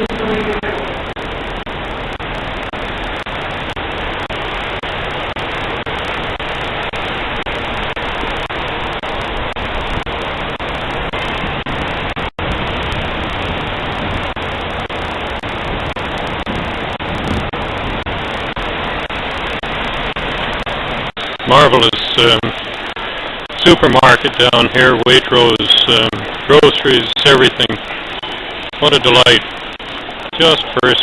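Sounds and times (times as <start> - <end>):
steady rushing noise: 0.0 - 31.0.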